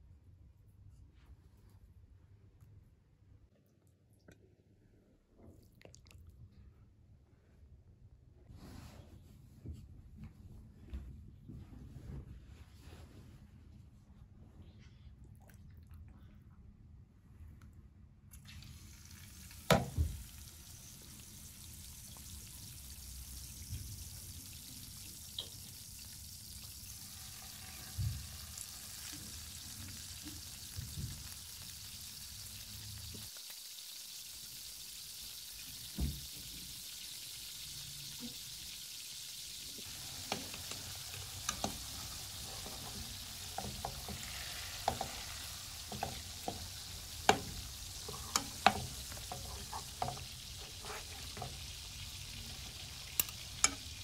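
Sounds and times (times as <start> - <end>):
chicken sizzling in oil: 18.5 - 54.0
forks tapping and scraping pan: 39.9 - 54.0.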